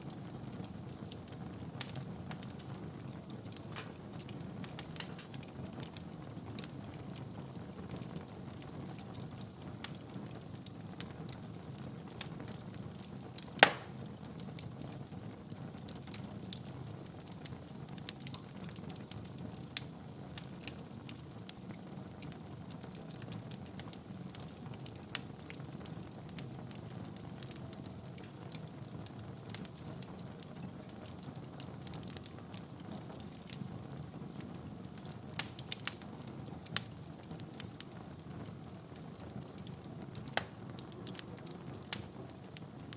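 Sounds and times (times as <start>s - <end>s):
wood fire crackling: 0.0s - 42.9s
sharp pops from fire: 3.4s - 7.2s, 12.1s - 14.9s, 30.9s - 38.6s, 39.2s - 42.9s.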